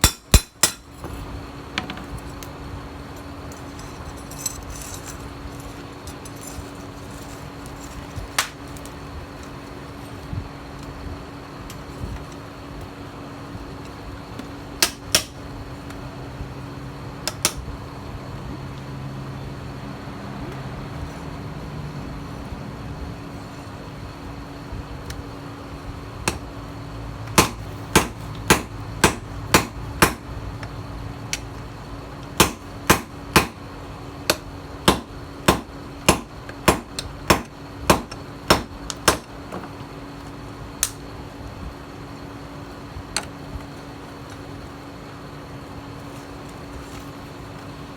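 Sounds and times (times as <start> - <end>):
hammer striking steel: 0.0 - 0.9, 27.4 - 30.2, 32.4 - 33.6, 34.3 - 39.3
steady hum: 0.0 - 47.9.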